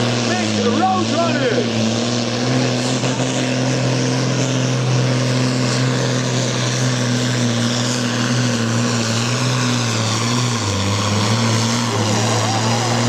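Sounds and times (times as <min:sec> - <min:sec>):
diesel tractor engine at full load: 0:00.0 - 0:13.0.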